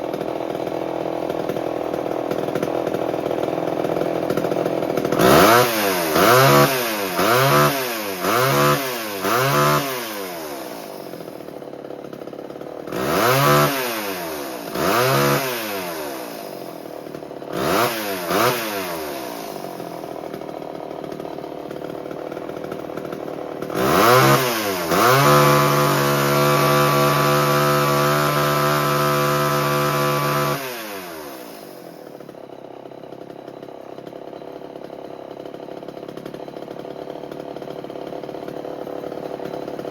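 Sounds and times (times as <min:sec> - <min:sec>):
chainsaw engine idling and revving: 0:00.0 - 0:39.9.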